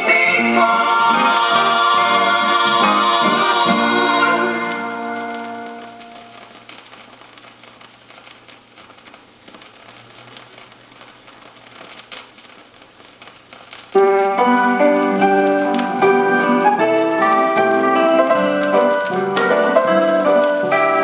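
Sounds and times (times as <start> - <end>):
piano playing gospel song: 0.0 - 6.4, 14.0 - 21.0
faint hiss: 0.0 - 21.0.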